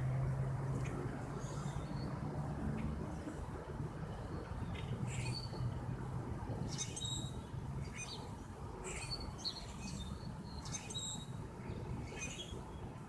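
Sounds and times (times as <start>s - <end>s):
small birds chirping: 6.6s - 13.0s.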